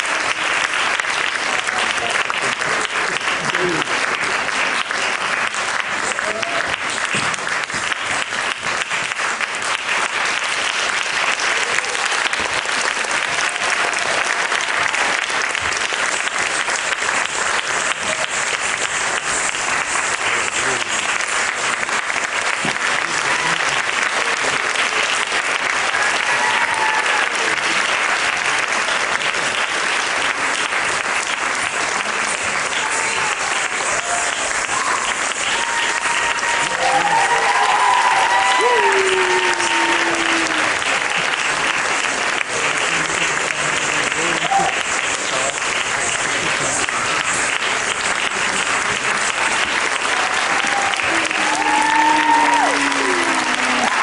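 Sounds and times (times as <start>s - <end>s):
audience applauding: 0.0s - 54.0s
faint voices: 31.9s - 54.0s.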